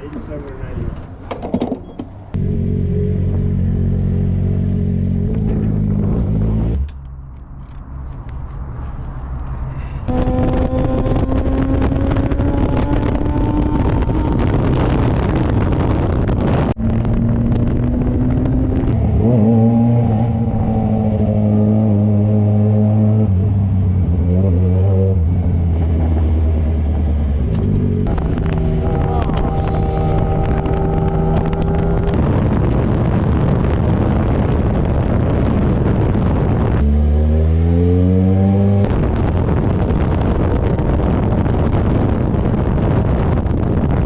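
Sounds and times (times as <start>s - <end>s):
loud rushing wind noise: 8.6s - 44.0s
motorcycle engine running: 25.8s - 33.1s.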